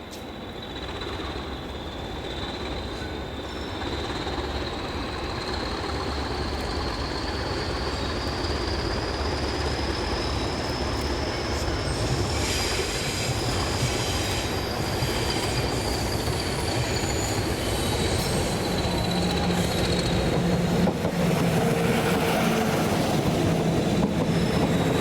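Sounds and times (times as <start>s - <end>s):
train wheels rumbling: 0.1s - 25.0s
high-pitched wheel squeal: 6.8s - 25.0s.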